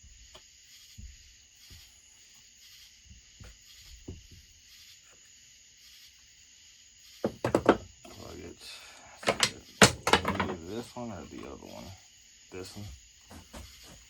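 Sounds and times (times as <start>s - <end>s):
crickets chirring: 0.0s - 14.0s
clicks and knocks of parts on bench: 7.3s - 7.9s, 9.2s - 10.6s.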